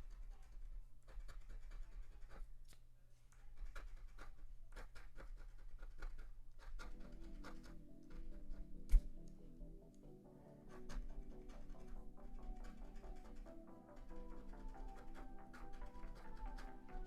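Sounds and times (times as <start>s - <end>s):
scratching lottery ticket: 0.0s - 2.7s, 3.3s - 9.2s, 10.5s - 17.0s
soft background music: 6.6s - 17.0s.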